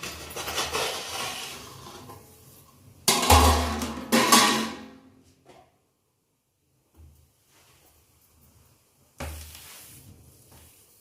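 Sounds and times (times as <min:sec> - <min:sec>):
metal tray and pan clattering: 0:00.0 - 0:02.1, 0:03.1 - 0:04.9.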